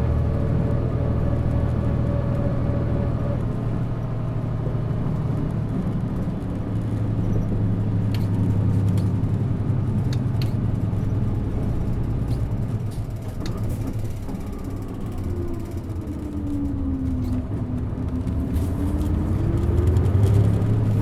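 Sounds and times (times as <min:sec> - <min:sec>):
bus engine rumble: 0:00.0 - 0:21.0
bus whine: 0:00.0 - 0:21.0.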